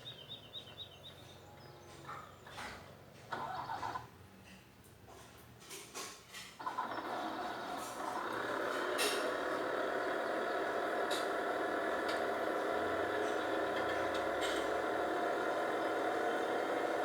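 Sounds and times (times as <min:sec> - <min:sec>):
machine engine running: 0:06.6 - 0:17.0.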